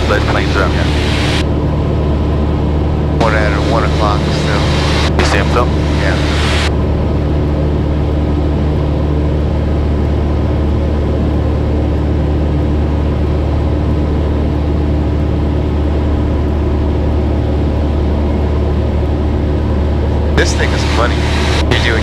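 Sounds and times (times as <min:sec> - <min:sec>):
airplane engine droning: 0:00.0 - 0:22.0.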